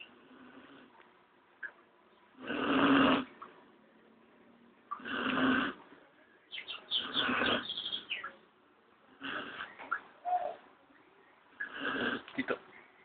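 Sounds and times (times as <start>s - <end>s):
dog snoring: 2.4s - 3.3s, 5.0s - 5.8s, 7.0s - 7.7s, 11.6s - 12.3s.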